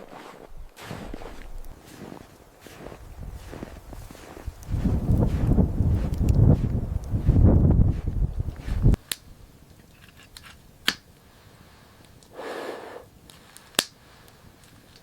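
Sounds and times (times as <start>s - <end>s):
footsteps crunching in snow: 0.0s - 9.0s
sharp snaps: 8.9s - 9.3s, 10.4s - 11.1s, 13.3s - 15.0s.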